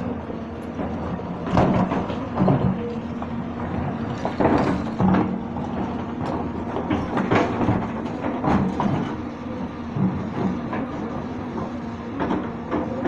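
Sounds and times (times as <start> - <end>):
diesel engine drone: 0.0 - 13.0
metallic clanks and knocks: 0.6 - 9.3.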